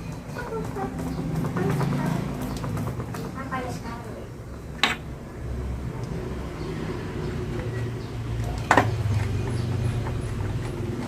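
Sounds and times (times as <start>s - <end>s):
plastic fan parts knocking: 0.0s - 5.2s.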